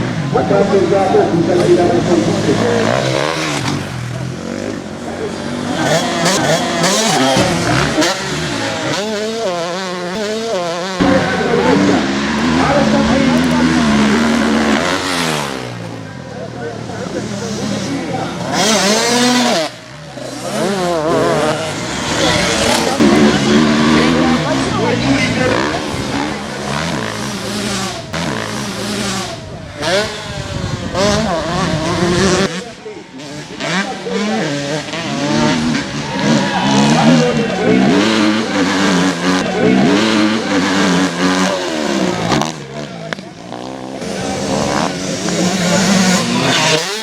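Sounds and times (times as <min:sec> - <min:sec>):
motocross bike engines revving: 0:00.0 - 0:47.0.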